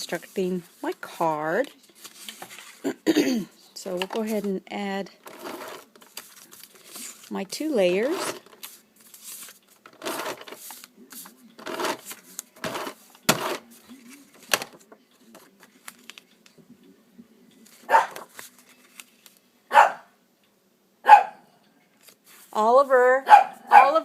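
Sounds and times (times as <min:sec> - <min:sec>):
dog barking: 0:17.9 - 0:18.2, 0:19.7 - 0:20.2, 0:21.0 - 0:21.5, 0:23.2 - 0:24.0.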